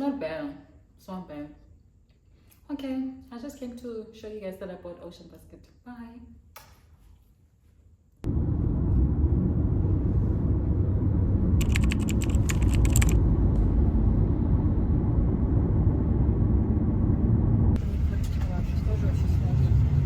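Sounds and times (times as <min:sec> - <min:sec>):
road rumble inside car: 0:08.2 - 0:20.0
small clicks: 0:11.6 - 0:13.2.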